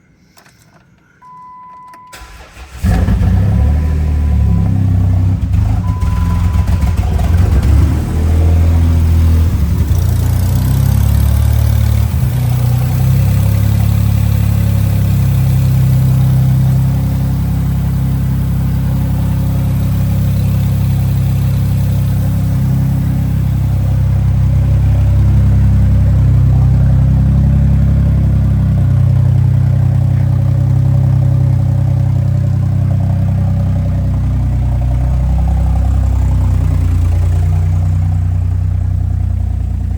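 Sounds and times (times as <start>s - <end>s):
car engine starting and idling: 0.2s - 39.9s
faint beeping tone: 1.1s - 2.2s, 5.8s - 7.0s.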